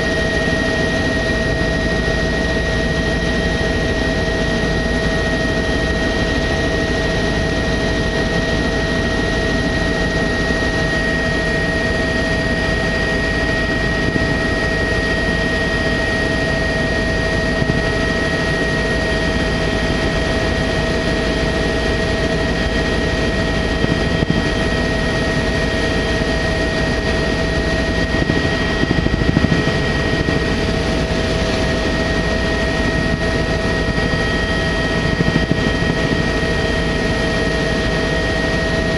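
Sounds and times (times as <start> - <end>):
helicopter engine and rotor drone: 0.0 - 38.9
high whining tones: 23.5 - 37.6.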